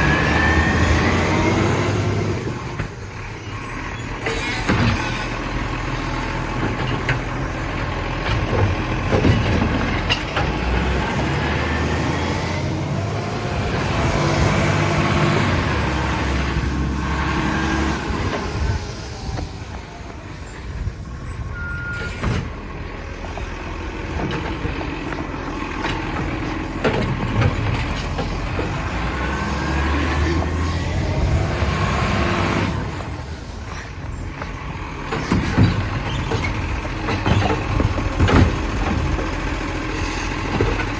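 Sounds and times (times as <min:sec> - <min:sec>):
garbage truck engine revving: 0:00.0 - 0:40.9
knocks and clatter: 0:06.4 - 0:11.1, 0:23.2 - 0:29.2, 0:34.4 - 0:40.9
short beep: 0:21.4 - 0:22.2.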